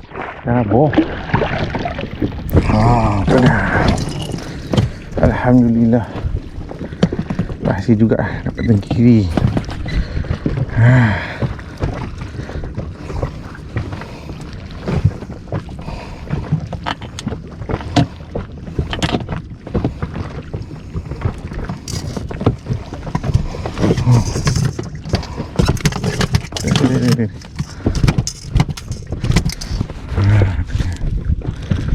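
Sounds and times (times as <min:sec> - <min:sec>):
low wind: 0:00.0 - 0:31.9
water noise: 0:00.0 - 0:31.9
gear knocking and clattering: 0:02.5 - 0:10.8, 0:21.6 - 0:30.0.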